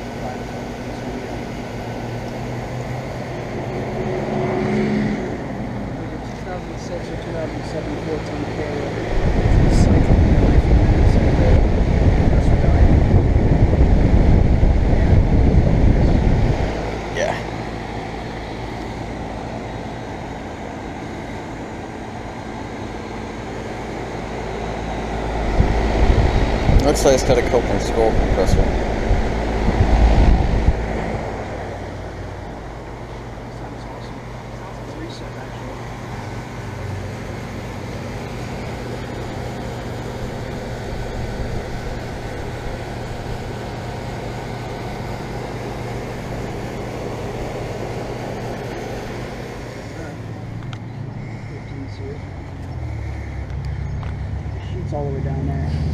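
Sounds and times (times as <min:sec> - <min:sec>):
compressor humming: 0:00.0 - 0:55.9
fan air rushing: 0:00.0 - 0:55.9
whoosh of moving air: 0:08.4 - 0:19.8, 0:24.3 - 0:33.3.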